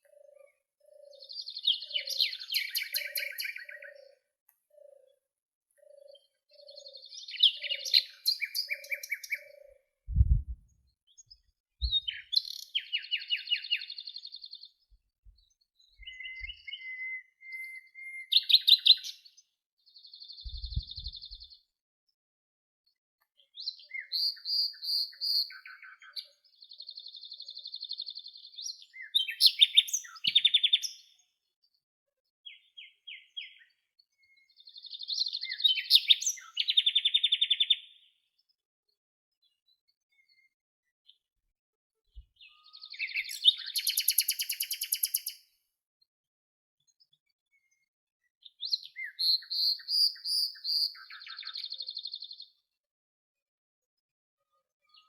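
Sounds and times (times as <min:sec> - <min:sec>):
songbirds singing: 0:00.0 - 0:21.8, 0:22.9 - 0:31.8, 0:32.4 - 0:41.4, 0:42.0 - 0:45.7, 0:46.8 - 0:52.8, 0:54.4 - 0:55.0
low thumps: 0:10.1 - 0:10.6
soft low repeating note: 0:10.1 - 0:10.6.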